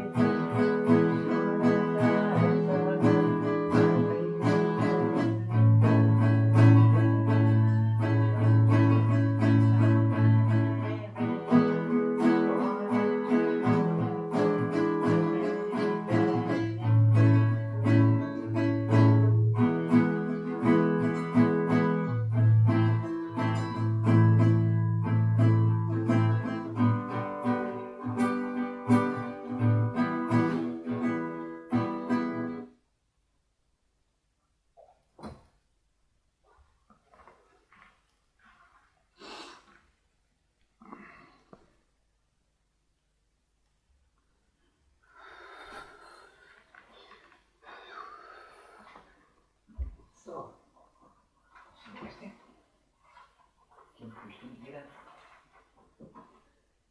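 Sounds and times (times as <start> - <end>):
acoustic guitar playing: 0.0 - 32.8.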